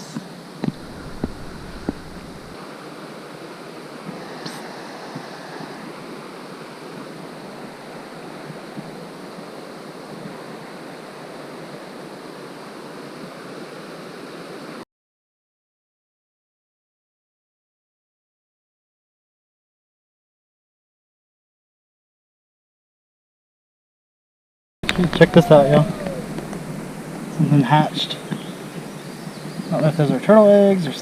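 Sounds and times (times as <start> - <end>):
river water rushing: 0.4 - 14.8, 24.8 - 29.6.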